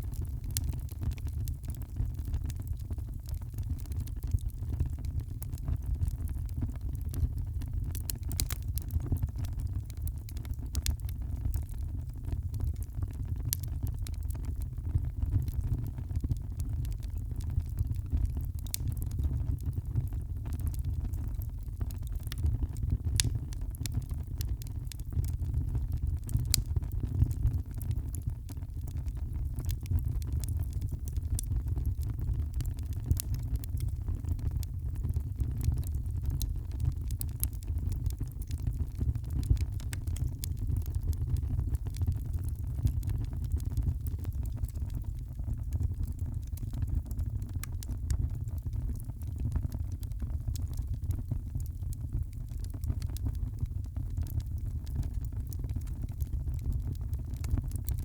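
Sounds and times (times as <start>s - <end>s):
wood fire crackling: 0.0s - 58.0s
sharp pops and snaps: 23.2s - 23.4s.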